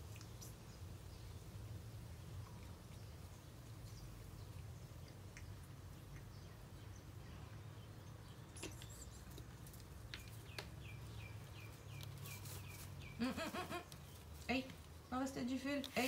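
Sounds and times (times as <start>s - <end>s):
faint background hum: 0.0s - 16.0s
small bird chirping: 2.4s - 14.4s.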